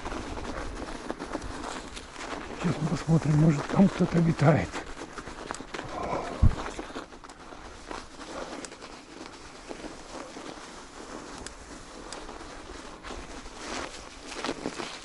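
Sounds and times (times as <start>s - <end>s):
footsteps on snow: 0.0s - 15.0s.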